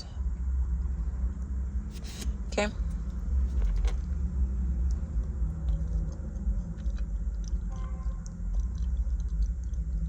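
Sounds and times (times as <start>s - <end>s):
car engine cabin rumble: 1.8s - 10.0s.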